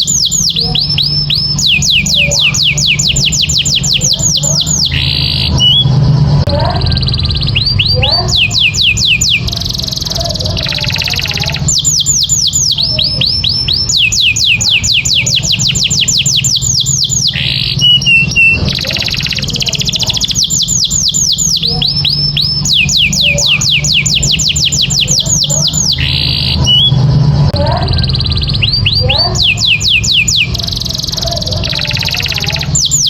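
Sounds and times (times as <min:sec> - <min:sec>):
canary singing: 0:00.0 - 0:33.0
low steady hum: 0:00.0 - 0:33.0.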